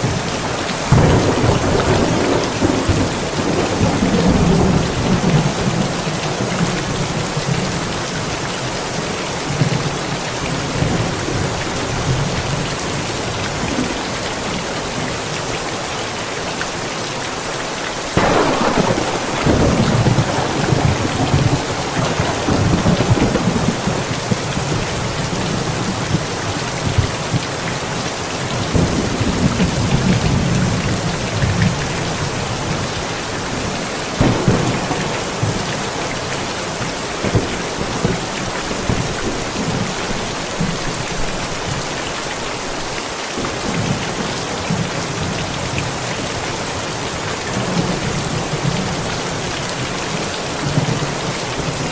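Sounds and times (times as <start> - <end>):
steady rain: 0.0 - 51.9
thunder rumbling: 0.6 - 7.4, 18.2 - 27.4, 28.5 - 41.5.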